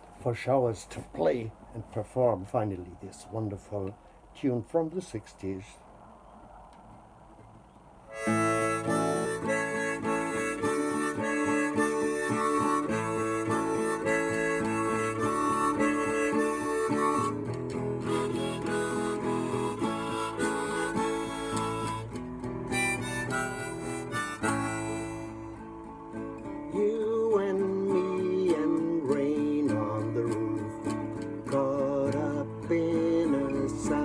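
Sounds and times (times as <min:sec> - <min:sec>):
harmonica: 0:08.1 - 0:34.0
strummed acoustic guitar: 0:08.1 - 0:34.0.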